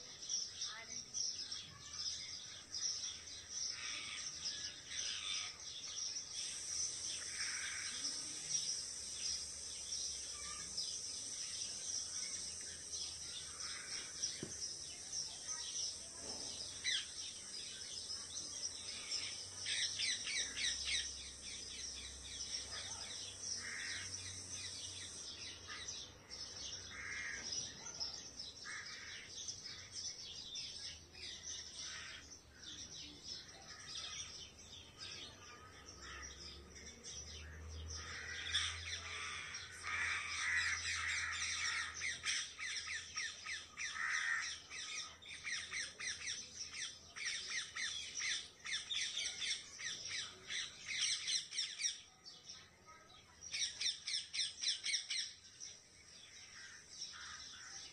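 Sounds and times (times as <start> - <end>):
birds squawking and chirping: 0.0 - 57.9
rapid harsh bird calls: 3.6 - 27.9, 37.5 - 52.0.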